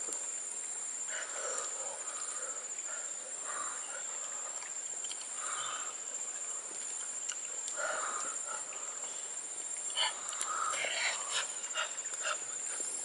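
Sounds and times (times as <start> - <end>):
high insect drone: 0.0 - 13.0
sharp wet clicks: 4.2 - 5.5, 6.4 - 8.9, 9.7 - 10.9.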